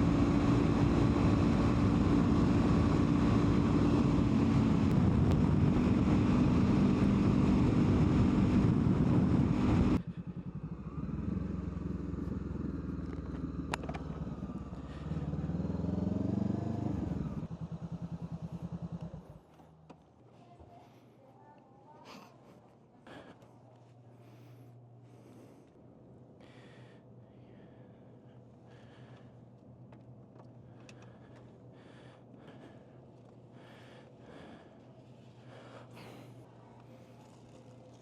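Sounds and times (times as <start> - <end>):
motorcycle engine: 0.0 - 20.1, 33.2 - 38.0.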